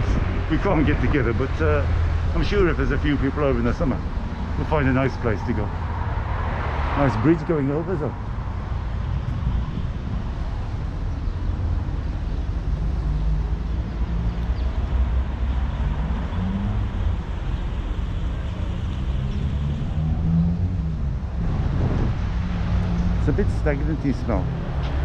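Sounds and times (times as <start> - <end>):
wind buffeting microphone: 0.0 - 6.4, 8.1 - 13.6, 19.2 - 25.0
traffic engine hum: 0.0 - 25.0.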